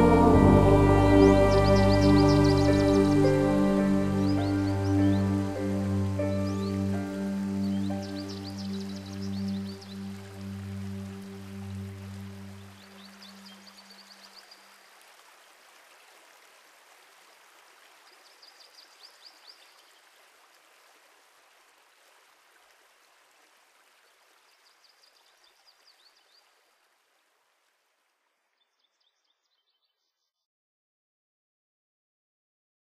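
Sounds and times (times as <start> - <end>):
high chirps: 0.0 - 6.9
faint running stream: 0.0 - 29.2.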